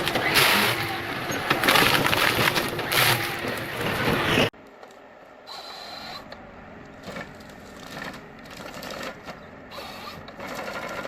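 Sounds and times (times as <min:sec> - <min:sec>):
wood chipper splintering wood: 0:00.0 - 0:04.5, 0:10.2 - 0:11.0
forestry machinery clatter: 0:00.0 - 0:05.0, 0:06.8 - 0:11.0.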